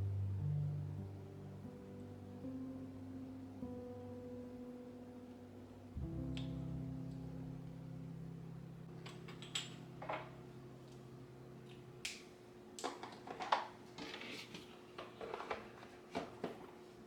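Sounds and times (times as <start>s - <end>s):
low sustained music note: 0.0s - 11.6s.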